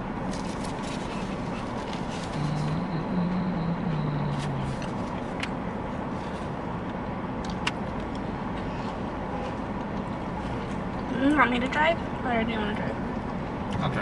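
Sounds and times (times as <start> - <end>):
traffic noise: 0.0 - 14.0
low hum of voice: 2.0 - 5.0.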